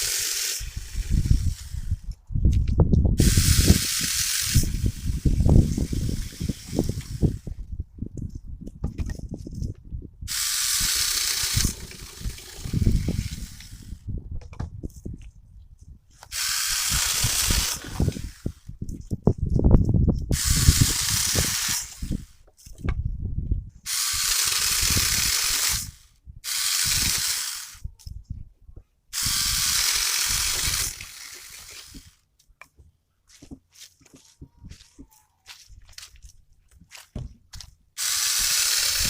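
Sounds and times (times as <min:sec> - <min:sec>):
mini chainsaw cutting wood: 0:00.0 - 0:02.0, 0:03.2 - 0:07.5, 0:10.3 - 0:14.0, 0:16.2 - 0:18.7, 0:20.3 - 0:22.4, 0:23.9 - 0:27.8, 0:29.2 - 0:32.2, 0:38.0 - 0:39.0
handling knocks and rustling: 0:08.2 - 0:09.8, 0:31.9 - 0:37.8.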